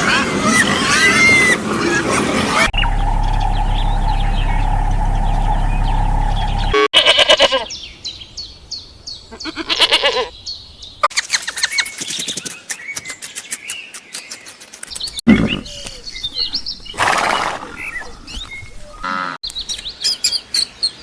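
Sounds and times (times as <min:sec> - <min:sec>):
rapid chirping: 0:02.6 - 0:06.9
short pulsed animal calls: 0:02.7 - 0:06.9
steady hum: 0:02.7 - 0:06.9.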